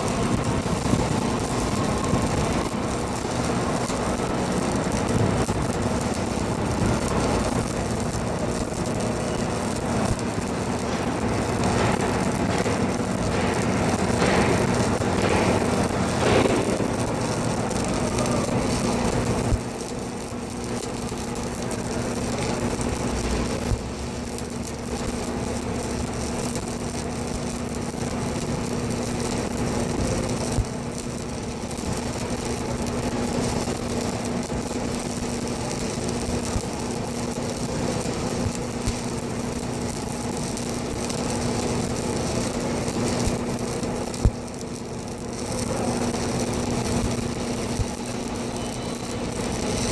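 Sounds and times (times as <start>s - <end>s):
machine humming: 0.0s - 26.4s.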